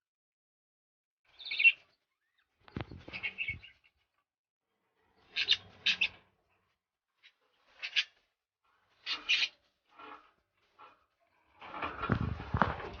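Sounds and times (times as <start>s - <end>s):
goldfinch twittering chirps: 1.3s - 3.9s.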